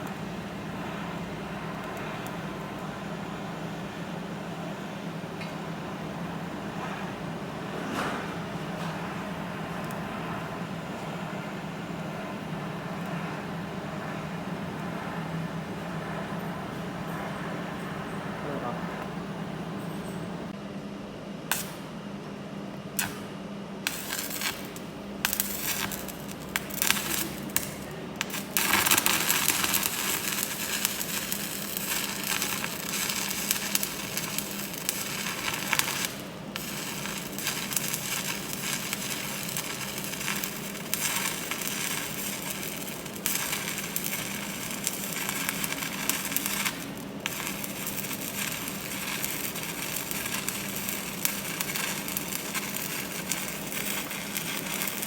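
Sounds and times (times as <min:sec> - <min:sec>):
welding arc crackling: 0:23.0 - 0:23.2, 0:23.8 - 0:55.0.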